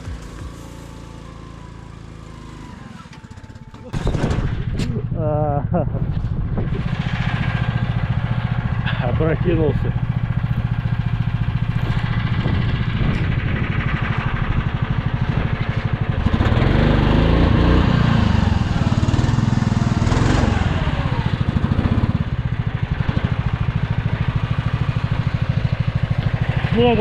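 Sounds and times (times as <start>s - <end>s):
snowmobile engine idling and revving: 0.0s - 27.0s.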